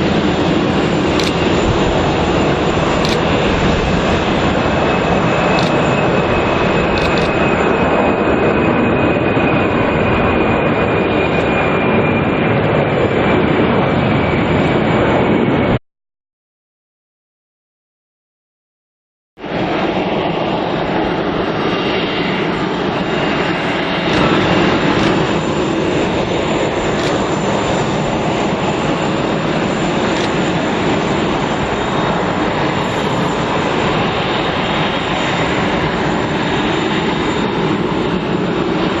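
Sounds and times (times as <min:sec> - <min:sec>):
jet engines roaring: 0:00.0 - 0:15.8, 0:19.4 - 0:39.0.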